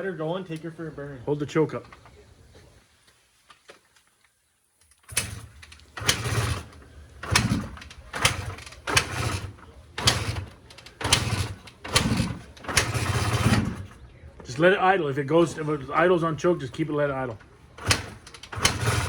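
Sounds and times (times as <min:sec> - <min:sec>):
motorcycle engine being kick-started: 0:04.8 - 0:14.0, 0:17.3 - 0:19.0.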